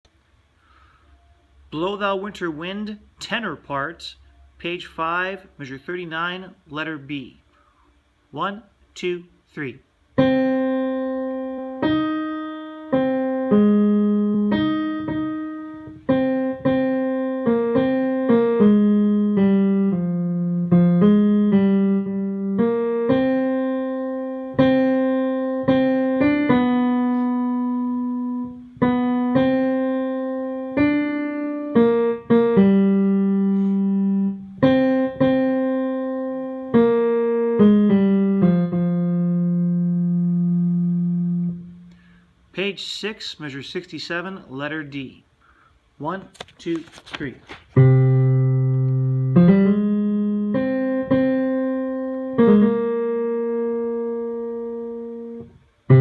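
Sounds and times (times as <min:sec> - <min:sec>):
piano-toned keyboard notes: 0:10.2 - 0:42.0, 0:47.8 - 0:56.0.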